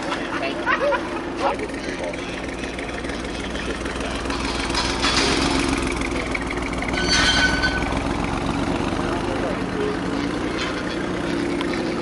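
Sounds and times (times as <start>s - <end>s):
car engine low hum: 0.0s - 12.0s
exhaust rushes: 1.0s - 12.0s.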